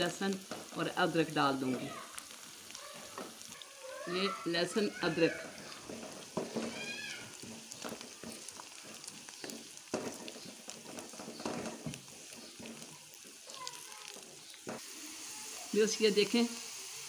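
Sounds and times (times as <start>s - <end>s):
onions and garlic sizzling: 0.0s - 17.0s
wooden spatula scraping a pan: 3.0s - 14.9s.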